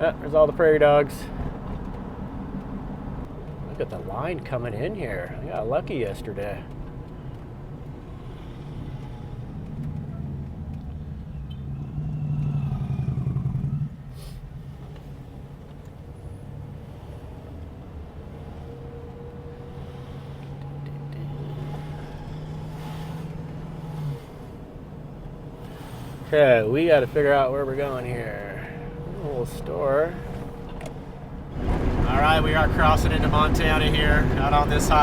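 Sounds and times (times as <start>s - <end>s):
engine and road drone: 0.0s - 35.0s
low hum: 17.4s - 35.0s.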